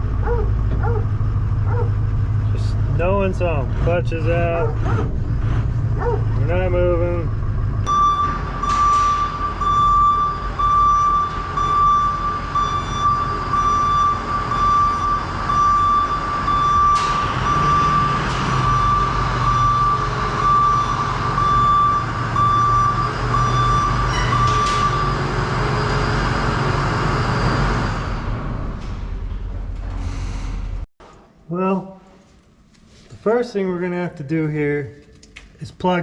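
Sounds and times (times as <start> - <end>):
diesel truck engine running: 0.0 - 29.9
truck reversing alarm beeping: 7.8 - 28.6.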